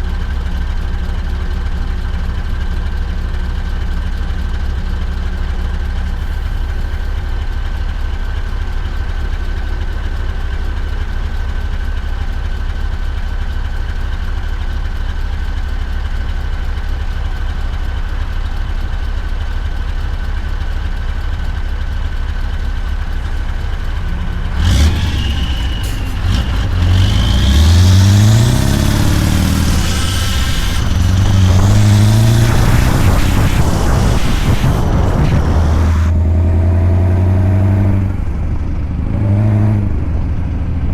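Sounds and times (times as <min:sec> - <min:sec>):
truck engine revving: 0:22.5 - 0:40.2.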